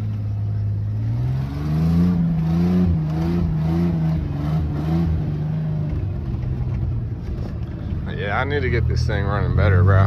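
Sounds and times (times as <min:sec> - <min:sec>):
truck engine revving: 0:00.0 - 0:06.7.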